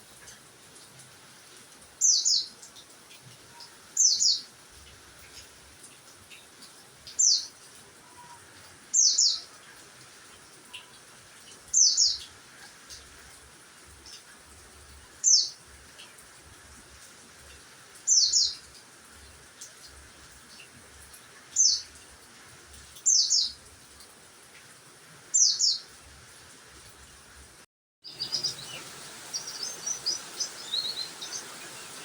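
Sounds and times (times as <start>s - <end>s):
songbird chirping: 2.0s - 4.5s, 6.3s - 9.8s, 11.6s - 13.2s, 15.1s - 16.2s, 18.0s - 18.8s, 20.5s - 22.0s, 22.9s - 23.6s, 25.3s - 26.0s, 28.0s - 32.0s.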